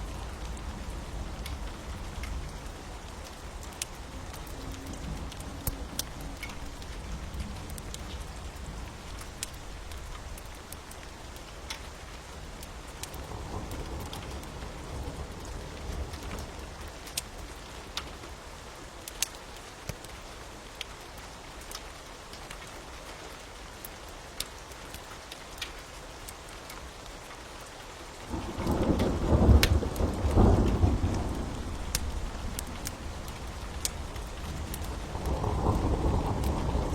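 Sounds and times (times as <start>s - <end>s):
wood fire crackling: 0.0s - 14.5s, 19.0s - 22.7s, 27.7s - 36.9s
steady rain: 0.0s - 36.9s
thunder rumbling: 28.3s - 36.9s.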